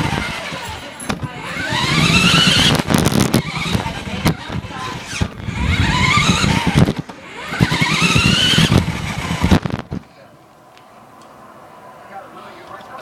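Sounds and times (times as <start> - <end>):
rc car motor whining: 0.0 - 10.0.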